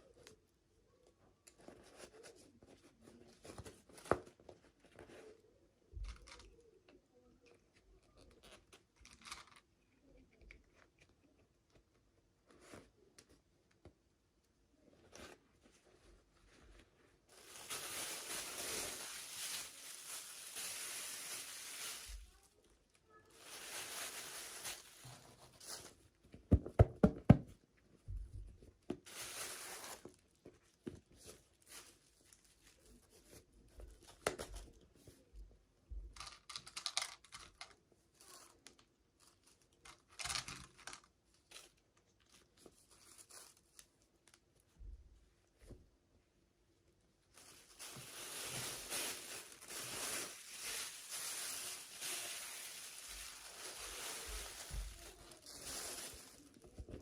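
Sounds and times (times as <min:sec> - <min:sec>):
packaging crinkling and tapping: 0:47.4 - 0:57.0.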